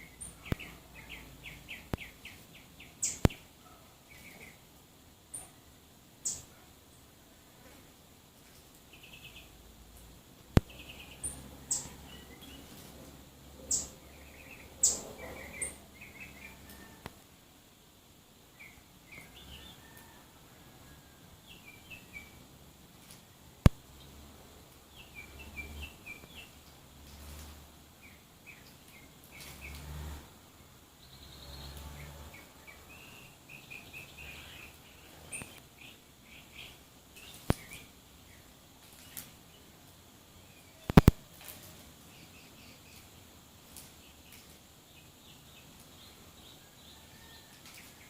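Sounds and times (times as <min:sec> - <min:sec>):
small songbirds chirping: 0:00.0 - 0:48.0
sharp clicks: 0:40.9 - 0:41.2.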